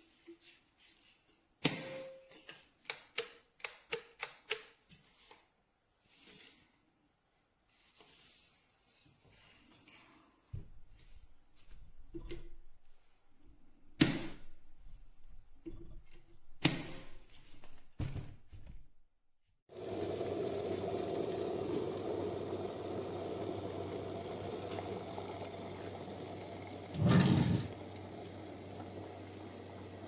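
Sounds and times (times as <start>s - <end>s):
electric kettle hissing: 19.7s - 30.0s.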